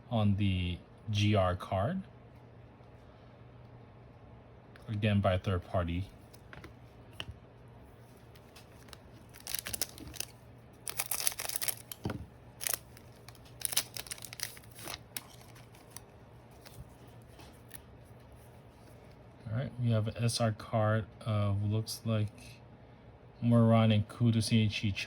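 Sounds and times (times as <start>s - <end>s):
paper and foil rustling: 8.0s - 19.1s.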